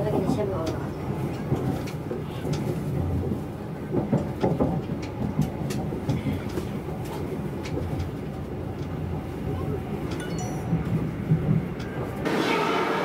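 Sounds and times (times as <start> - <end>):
train rumbling inside carriage: 0.0 - 13.0.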